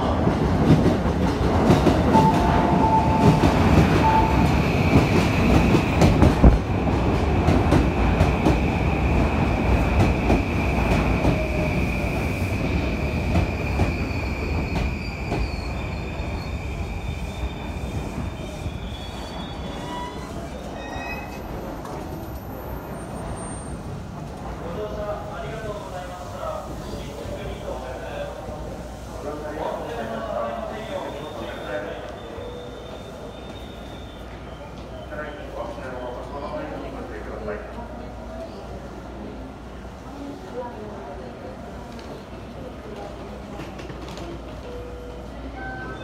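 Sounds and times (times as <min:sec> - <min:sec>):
train wheels rumbling on rails: 0:00.0 - 0:27.7.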